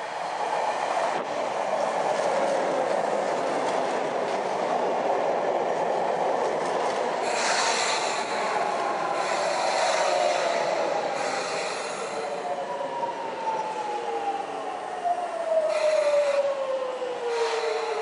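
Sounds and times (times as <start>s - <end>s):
train wheels rumbling on rails: 0.0s - 14.4s, 15.3s - 18.0s
train brake squeal: 7.2s - 12.5s, 15.7s - 16.5s, 17.2s - 18.0s.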